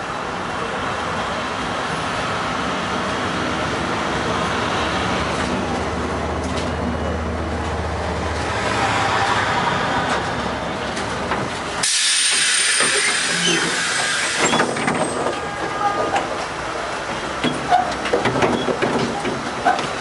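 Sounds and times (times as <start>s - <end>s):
tram rumbling along rails: 0.0s - 20.0s
bright hiss: 11.8s - 14.4s.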